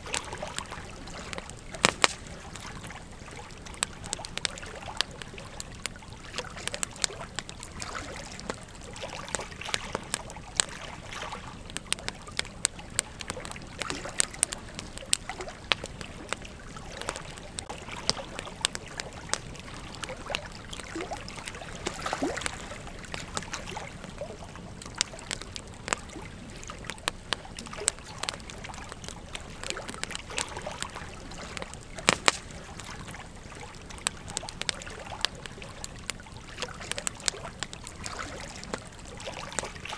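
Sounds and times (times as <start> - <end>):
steady low hiss: 0.0 - 6.3
campfire crackling and popping: 0.0 - 39.9.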